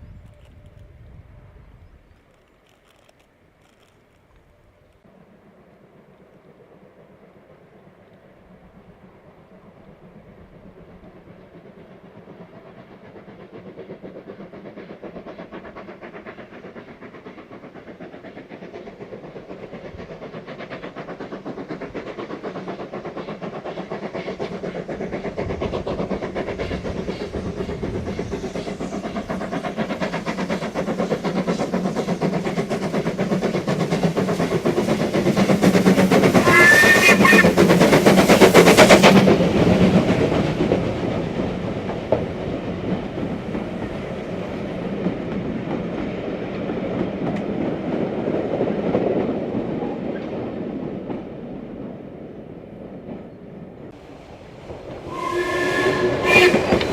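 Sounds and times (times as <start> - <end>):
steam locomotive beats: 4.5 - 56.9
rail clatter: 13.3 - 51.4, 53.9 - 56.9
high-pitched whistle or squeal: 55.1 - 56.9.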